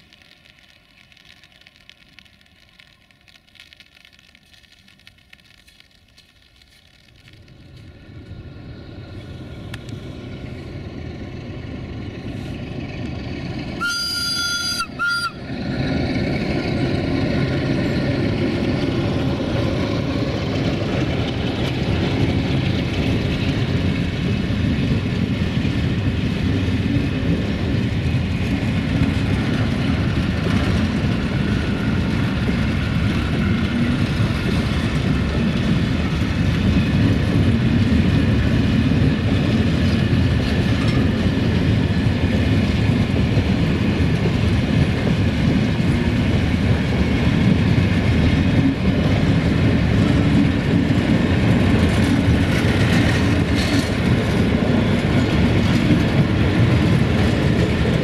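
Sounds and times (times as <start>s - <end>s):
freight wagons rumbling past: 7.4s - 58.0s
locomotive horn blasts: 13.8s - 15.5s
wheels clacking over rail joints: 15.6s - 58.0s.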